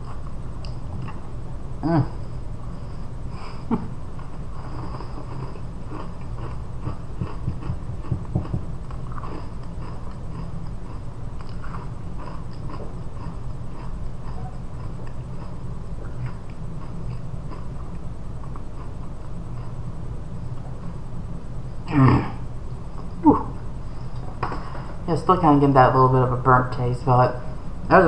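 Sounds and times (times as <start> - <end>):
steady low hum: 0.0 - 28.0
cookie crunching while chewing: 4.2 - 19.8.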